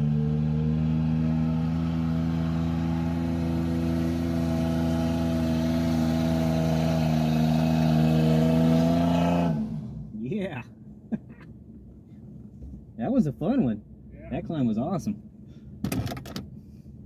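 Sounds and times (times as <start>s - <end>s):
engine revving high: 0.0s - 10.2s.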